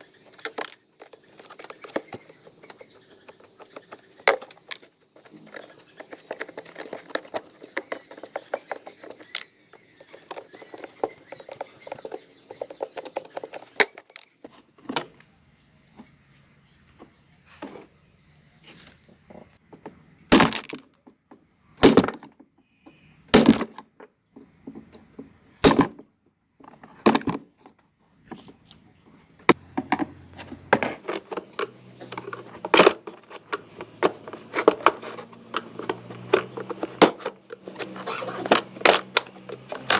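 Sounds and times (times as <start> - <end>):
metal tools clinking and rattling: 30.8 - 39.9.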